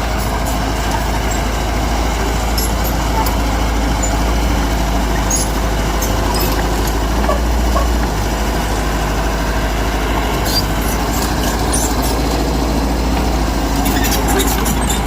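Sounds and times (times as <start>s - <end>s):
heavy diesel engine running: 0.0s - 15.0s
high clinks or squeaks: 5.3s - 6.6s.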